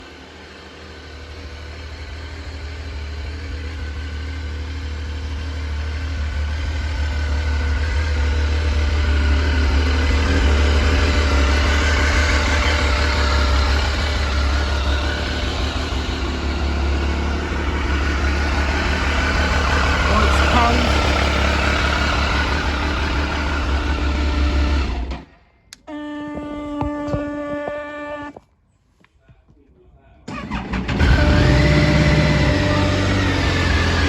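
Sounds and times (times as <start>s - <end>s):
motorcycle engine idling: 0.0s - 25.1s, 30.6s - 34.0s.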